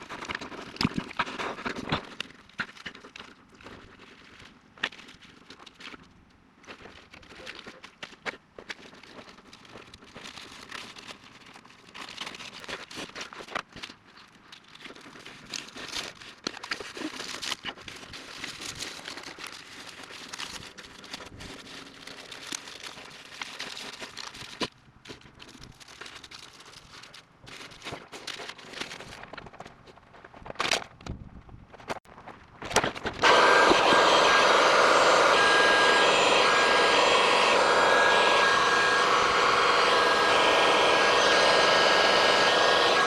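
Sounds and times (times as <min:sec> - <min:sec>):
material rustling and crinkling: 0:00.0 - 0:33.3
sharp clicks and crackles: 0:00.0 - 0:33.9.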